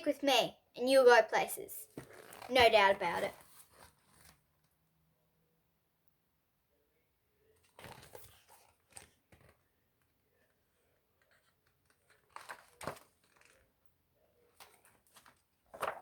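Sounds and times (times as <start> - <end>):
paper pages rustling and turning: 1.9 - 4.5, 7.6 - 9.7, 10.4 - 13.8, 14.5 - 16.0.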